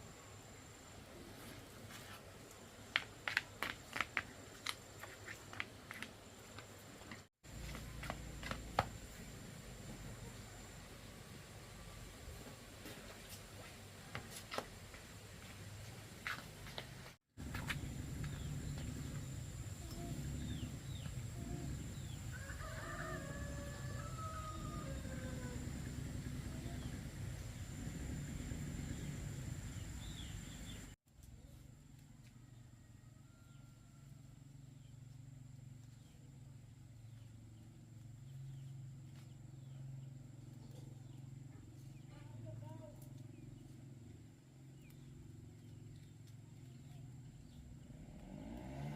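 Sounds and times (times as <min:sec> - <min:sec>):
low rumble: 0:24.5 - 0:30.9.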